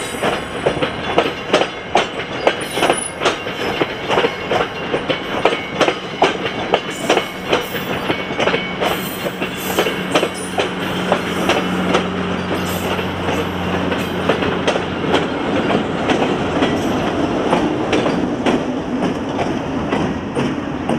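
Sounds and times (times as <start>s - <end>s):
diesel locomotive engine rumble: 0.0s - 20.9s
train wheels clicking over rail joints: 0.0s - 20.9s.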